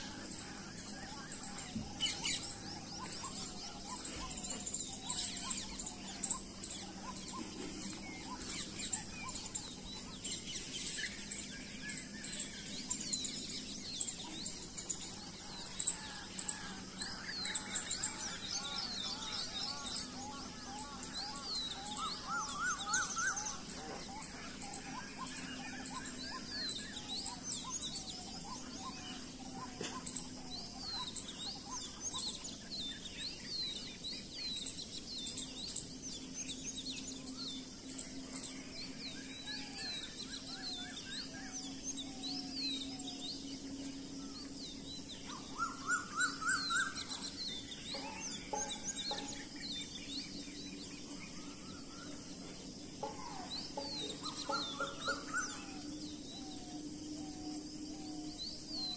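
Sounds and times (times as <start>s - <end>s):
faint steady hum: 0.0s - 58.9s
small birds chirping: 0.0s - 58.9s.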